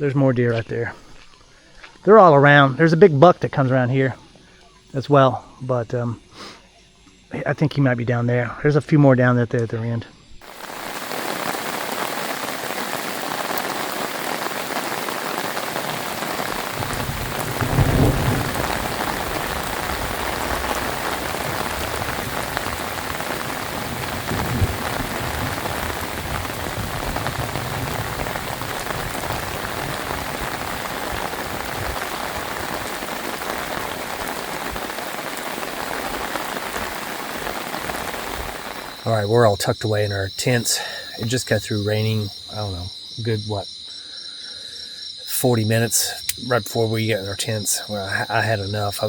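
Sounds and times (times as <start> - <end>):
thunder rumble: 10.4 - 39.7
heavy rain: 10.4 - 43.6, 45.2 - 49.0.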